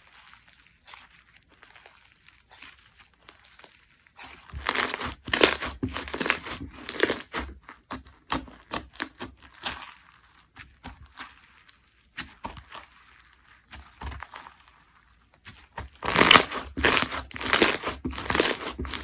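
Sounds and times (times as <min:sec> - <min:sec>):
slime crackling when squeezed: 0:00.0 - 0:07.4, 0:15.8 - 0:19.0.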